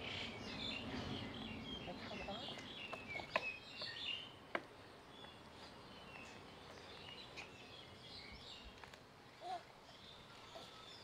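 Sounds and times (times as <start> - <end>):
faint bird chirps: 9.4 - 11.0.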